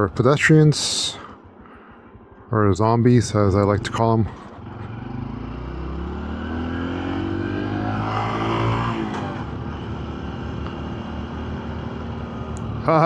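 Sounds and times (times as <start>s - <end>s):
road and wind noise: 0.0s - 13.0s
motorcycle engine accelerating: 3.5s - 13.0s.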